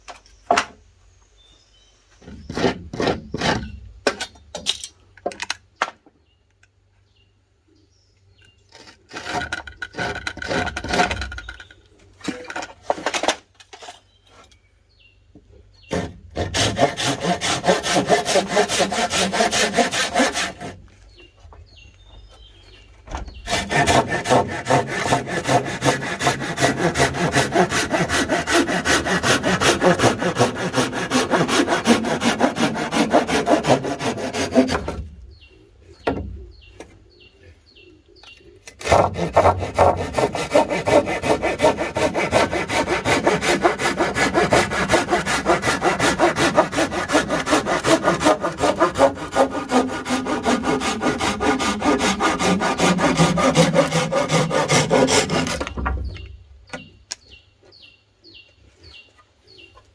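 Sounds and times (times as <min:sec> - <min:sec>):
hand saw cutting wood: 0:02.2 - 0:04.3, 0:08.7 - 0:11.4, 0:15.8 - 0:20.9, 0:23.4 - 0:35.0, 0:38.7 - 0:55.9.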